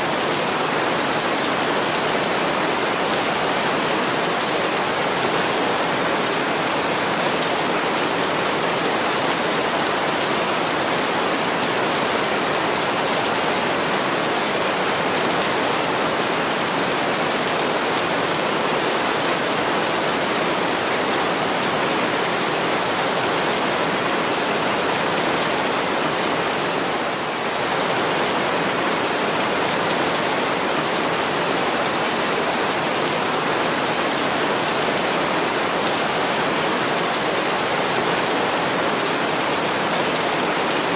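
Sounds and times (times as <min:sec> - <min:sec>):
heavy rain on a window: 0:00.1 - 0:40.9.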